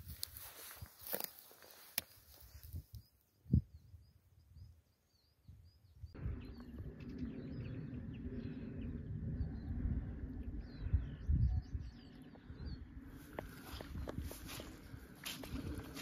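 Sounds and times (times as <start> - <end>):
small birds chirping: 0.1 - 16.0
steady low rumble: 6.1 - 16.0.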